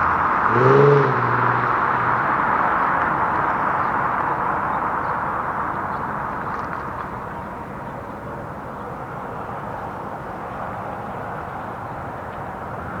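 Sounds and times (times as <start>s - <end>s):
car exhaust rushing: 0.0s - 4.4s.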